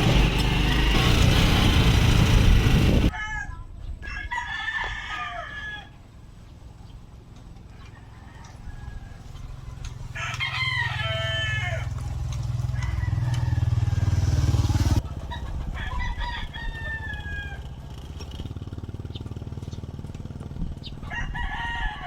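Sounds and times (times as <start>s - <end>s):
machine running rhythmically: 0.0s - 3.1s
rooster crowing: 3.0s - 6.0s, 7.8s - 9.5s, 10.1s - 14.6s, 15.3s - 17.8s, 21.0s - 22.0s.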